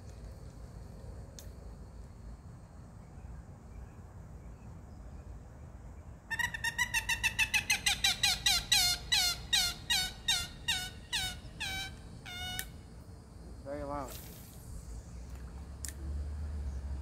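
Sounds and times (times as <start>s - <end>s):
bird calling sharp downslurred notes: 6.3s - 12.8s.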